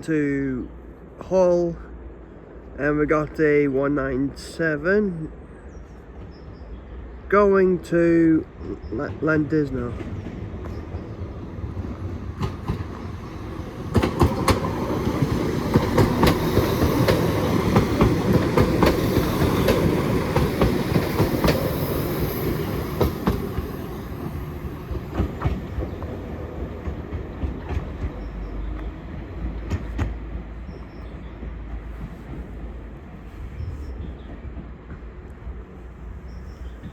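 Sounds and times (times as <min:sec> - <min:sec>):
train rumbling past: 0:00.0 - 0:36.9
wheels clicking over rail joints: 0:09.9 - 0:28.9.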